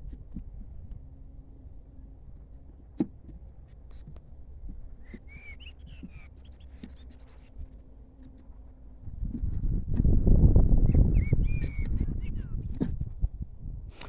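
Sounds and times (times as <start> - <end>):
low hum: 0.0 - 14.0
small birds chirping: 5.0 - 8.4, 10.9 - 13.2.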